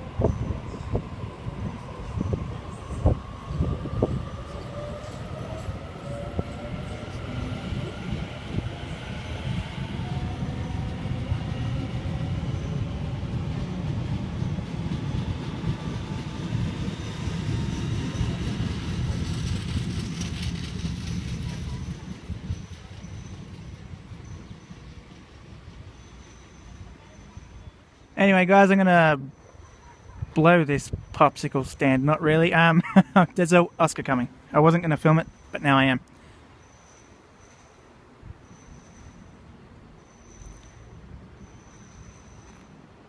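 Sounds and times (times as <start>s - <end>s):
electric train motors whining: 0.0s - 27.6s
wheels rumbling on rail: 0.0s - 43.0s.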